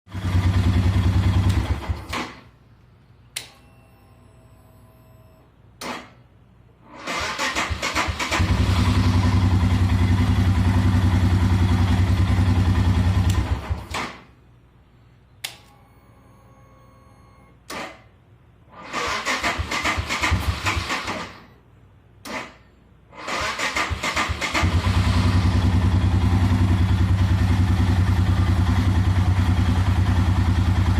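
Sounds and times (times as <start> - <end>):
motorcycle engine idling: 0.1 - 2.0, 8.4 - 13.6, 24.6 - 30.9.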